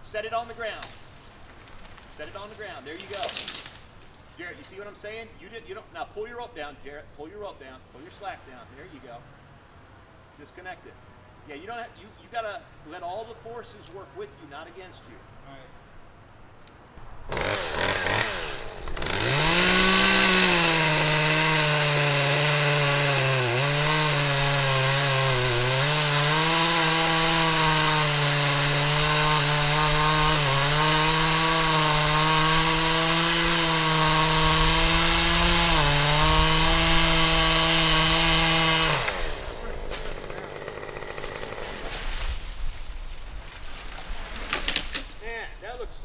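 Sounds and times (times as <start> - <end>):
chainsaw cutting wood: 0.8 - 3.9, 17.3 - 45.2.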